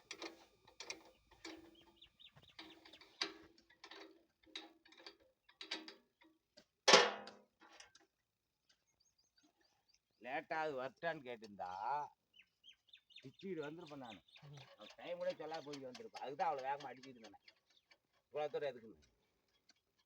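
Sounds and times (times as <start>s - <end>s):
hand tools clicking: 13.8s - 20.0s.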